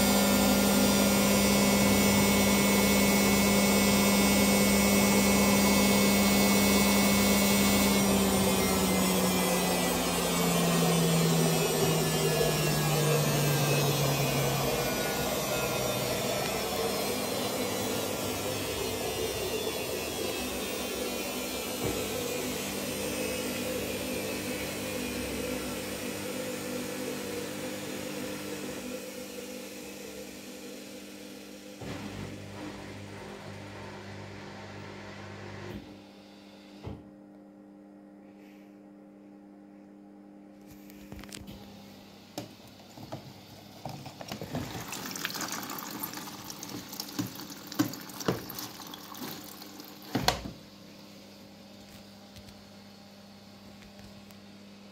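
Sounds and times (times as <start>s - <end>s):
washing machine spinning down: 0.0s - 38.0s, 41.1s - 54.9s.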